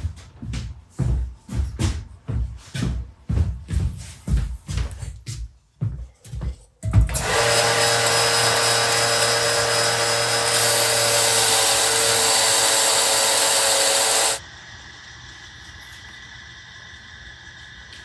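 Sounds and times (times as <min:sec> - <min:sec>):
power tool motor whine: 0:07.1 - 0:14.4.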